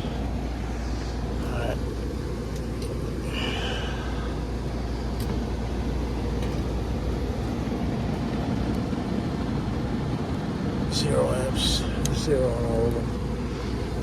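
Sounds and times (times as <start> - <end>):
air handler rumbling: 0.0 - 14.0.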